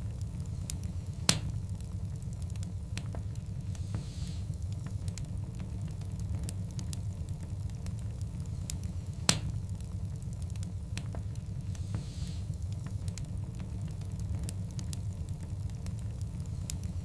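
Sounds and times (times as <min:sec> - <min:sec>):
wood fire crackling: 0:00.0 - 0:17.0
loud pop from fire: 0:01.2 - 0:01.6, 0:09.2 - 0:09.6.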